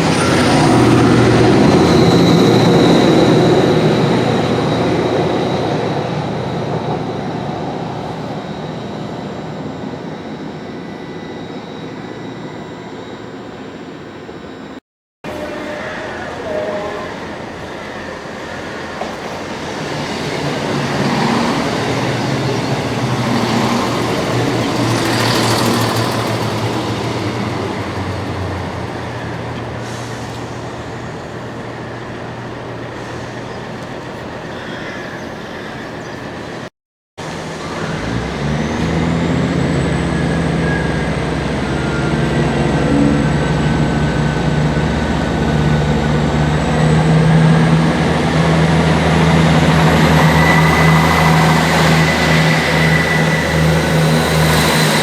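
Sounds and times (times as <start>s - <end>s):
faint high whine: 0.0s - 27.4s
diesel train engine humming: 0.0s - 55.0s
train rumbling along track: 0.0s - 55.0s.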